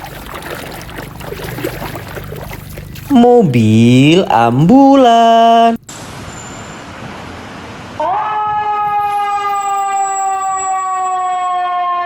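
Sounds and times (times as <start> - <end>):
ambulance siren wailing: 8.0 - 12.0.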